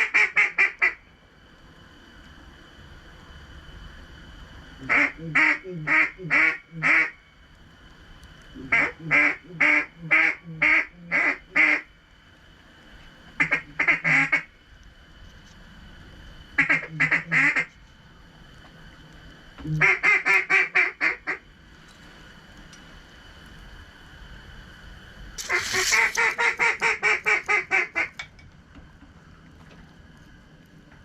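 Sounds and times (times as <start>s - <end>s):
mallard quacking: 25.4s - 28.1s.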